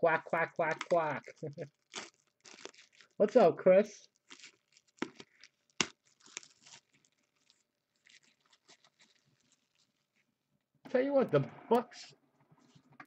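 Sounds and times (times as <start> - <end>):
packaging crinkling and tearing: 0.6 - 3.2, 4.0 - 10.3.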